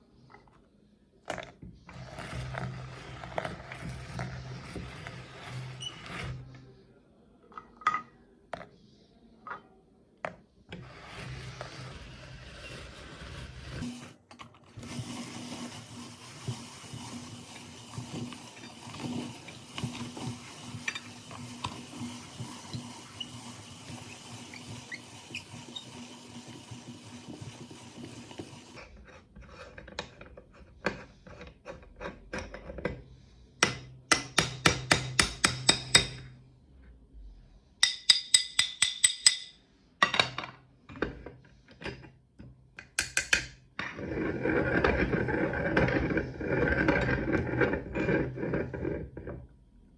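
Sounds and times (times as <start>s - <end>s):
meat grinder running and grinding: 11.0s - 14.2s, 14.8s - 28.8s.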